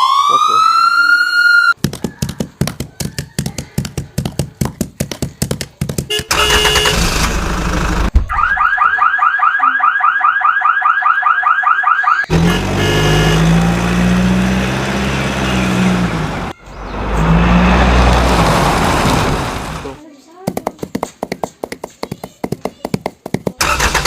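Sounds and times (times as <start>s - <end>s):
engine-like vehicle hum: 6.2s - 8.2s, 12.3s - 20.0s.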